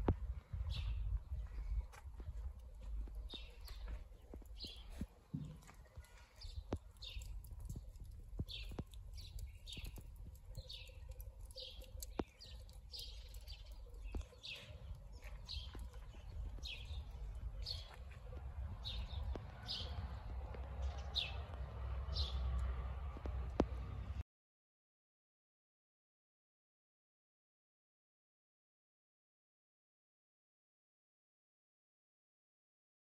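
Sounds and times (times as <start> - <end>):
low rumble: 0.0 - 5.0, 14.8 - 24.2
bird chirping: 2.6 - 22.8.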